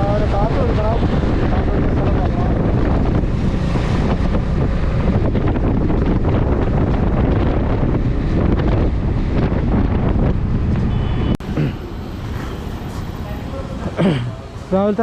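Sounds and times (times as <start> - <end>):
wind buffeting microphone: 0.0 - 11.5.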